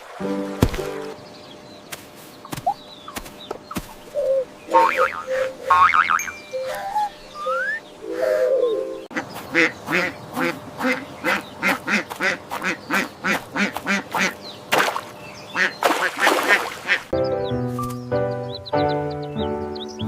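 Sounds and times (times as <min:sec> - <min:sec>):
duck quacking: 0:04.7 - 0:06.8, 0:09.1 - 0:14.4, 0:15.5 - 0:17.1.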